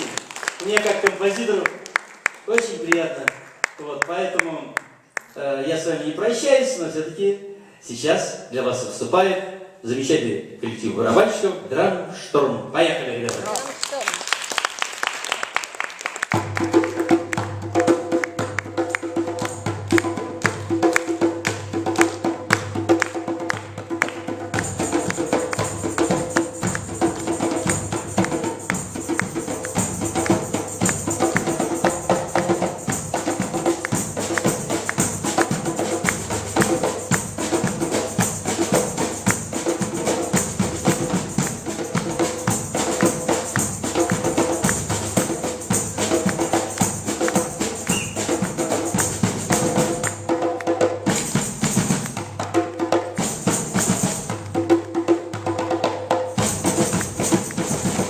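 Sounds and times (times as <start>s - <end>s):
drum ensemble playing: 15.9s - 58.0s.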